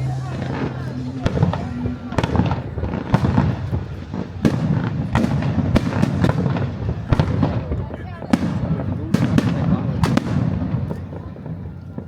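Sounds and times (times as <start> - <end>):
continuous rumble: 0.0 - 12.0
fireworks booming: 0.0 - 12.0
fireworks crackling: 0.0 - 12.0.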